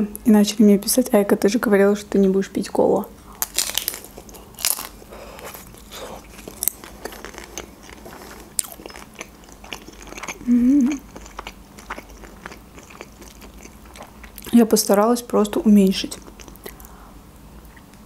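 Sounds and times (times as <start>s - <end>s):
chewing: 3.3s - 14.6s, 16.1s - 17.0s
crisp crunching bites: 3.4s - 10.4s
person humming: 10.4s - 11.0s.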